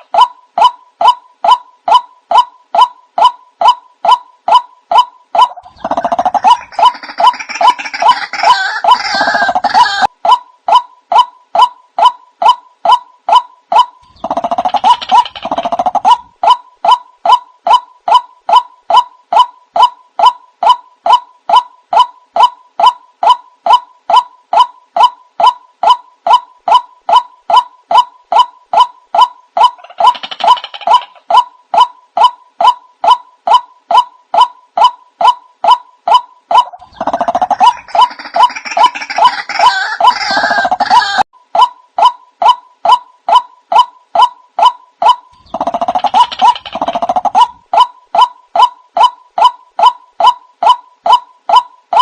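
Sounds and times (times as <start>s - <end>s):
waterhen call: 0.0s - 10.1s, 21.5s - 52.0s.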